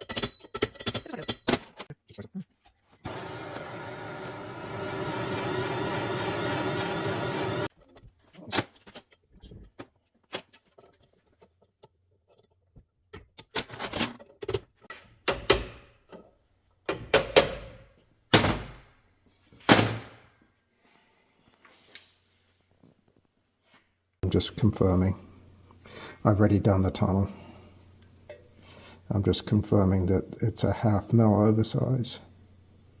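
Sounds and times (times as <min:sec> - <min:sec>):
metal parts clinking and knocking: 0:00.0 - 0:01.9, 0:10.3 - 0:18.0
mechanical hum: 0:03.0 - 0:07.7, 0:24.2 - 0:33.0.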